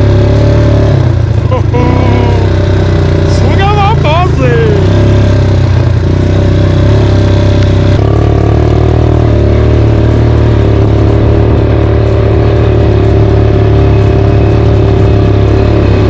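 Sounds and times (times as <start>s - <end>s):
quad bike engine running: 0.0s - 16.0s.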